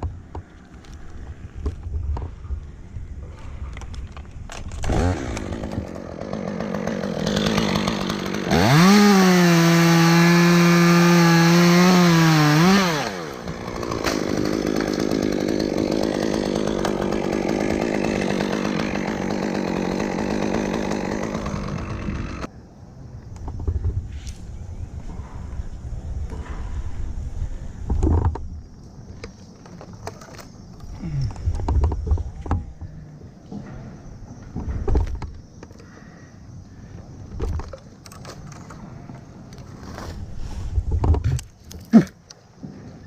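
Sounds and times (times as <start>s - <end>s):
chainsaw revving: 4.8s - 22.5s.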